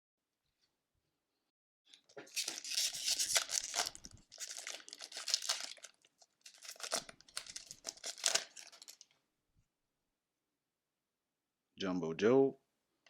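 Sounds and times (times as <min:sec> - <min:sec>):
foil wrapper crinkling and tearing: 0:02.2 - 0:09.1.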